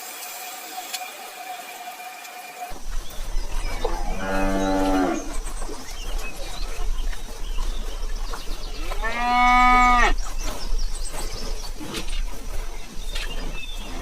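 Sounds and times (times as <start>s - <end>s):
cow mooing: 3.8s - 5.3s, 8.9s - 10.2s.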